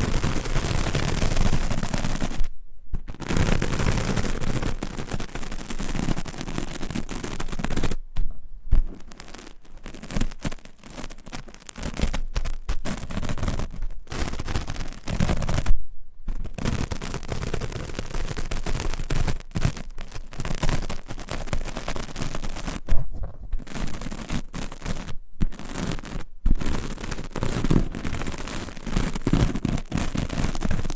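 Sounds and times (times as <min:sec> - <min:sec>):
crackling scratch with clicks: 0:00.0 - 0:30.9
object rubbed against microphone: 0:19.7 - 0:30.9.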